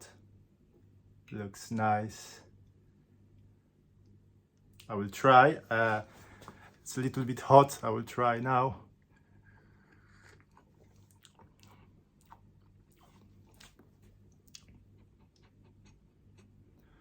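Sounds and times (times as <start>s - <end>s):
soft clicks and mouth sounds: 3.4s - 5.0s, 9.0s - 16.9s.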